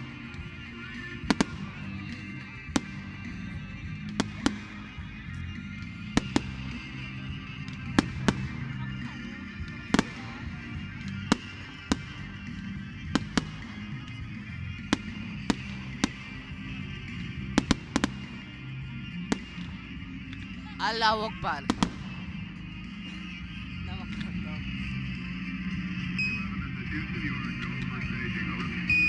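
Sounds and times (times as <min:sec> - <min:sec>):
distant fireworks bangs: 0:01.0 - 0:05.2, 0:05.8 - 0:08.8, 0:09.6 - 0:20.0.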